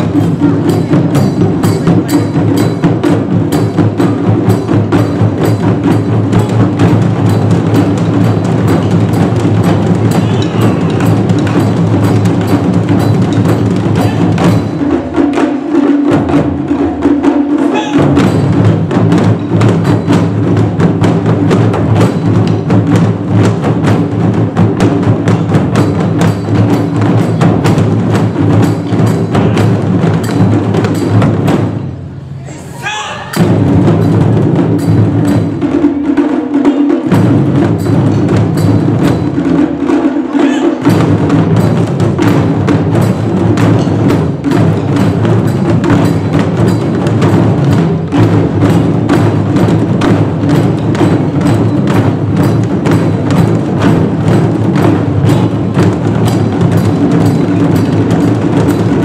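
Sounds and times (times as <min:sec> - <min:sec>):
taiko drum ensemble: 0:00.0 - 0:59.0.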